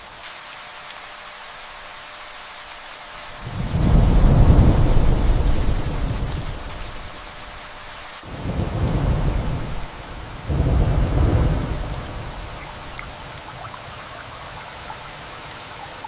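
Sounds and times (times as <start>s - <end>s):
steady rain: 0.0s - 16.0s
thunder rumbling: 3.4s - 13.4s
water drops ticking: 12.5s - 16.0s.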